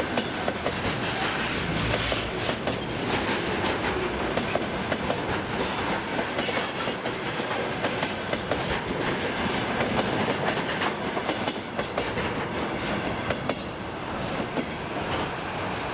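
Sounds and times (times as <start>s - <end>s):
train wheels clattering over rail joints: 0.0s - 15.3s.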